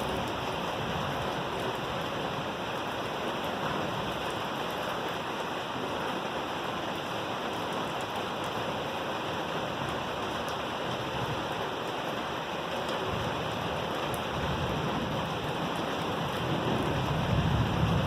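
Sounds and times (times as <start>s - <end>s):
heavy rain hissing: 0.0s - 18.0s
low thunder rumble: 14.3s - 18.0s.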